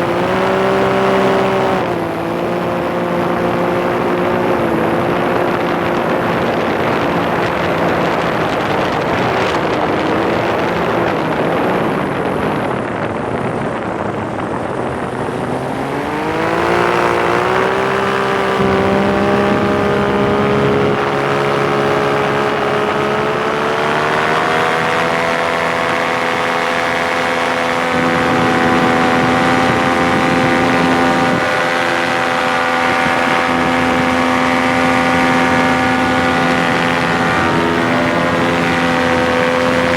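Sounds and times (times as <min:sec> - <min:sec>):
rushing noise: 0:00.0 - 0:25.7
paramotor engine and propeller: 0:00.0 - 0:39.9.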